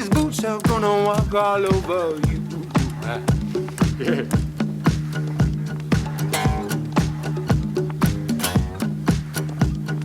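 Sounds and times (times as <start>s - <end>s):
boom-bap drum beat: 0.0s - 10.0s
strummed acoustic guitar: 0.0s - 10.0s.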